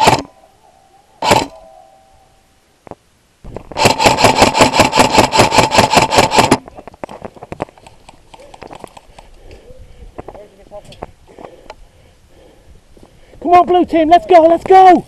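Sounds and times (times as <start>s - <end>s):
electric gun full-auto burst: 0.0s - 0.3s, 1.2s - 1.5s, 3.8s - 6.6s
faint clicks: 7.5s - 9.6s.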